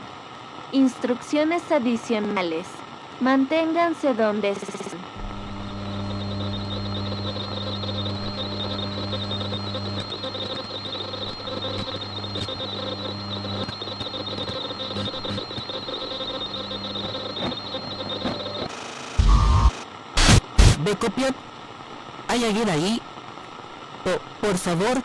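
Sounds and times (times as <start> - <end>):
low electrical hum: 5.2 - 18.3
radio static: 5.2 - 21.4, 22.3 - 23.1, 24.0 - 25.0.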